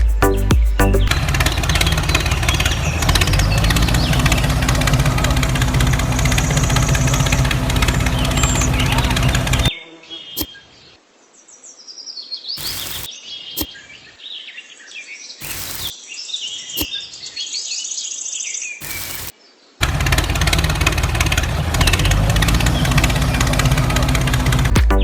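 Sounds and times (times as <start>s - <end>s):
small birds chirping: 0.0s - 25.0s
bursts of hiss: 12.6s - 13.7s, 15.4s - 15.9s, 18.8s - 19.3s.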